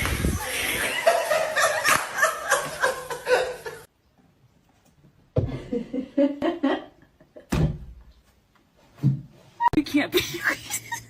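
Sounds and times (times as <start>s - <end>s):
people laughing: 0.4s - 3.9s, 10.2s - 11.0s.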